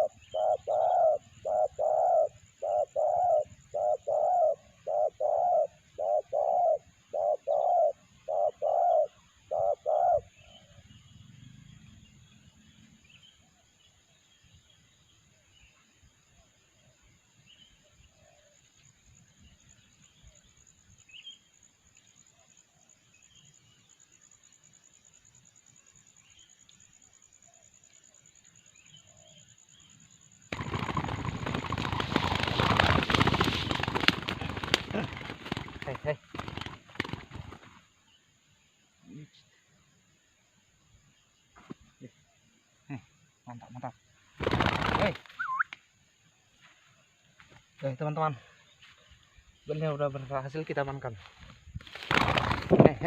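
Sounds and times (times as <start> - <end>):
dove cooing: 0.0 - 10.8, 30.6 - 37.6
faint bird calls: 0.0 - 21.6, 25.8 - 53.0
high insect whine: 0.0 - 53.0
dove wings flapping and rustling: 30.5 - 37.9, 44.4 - 45.4, 51.4 - 53.0.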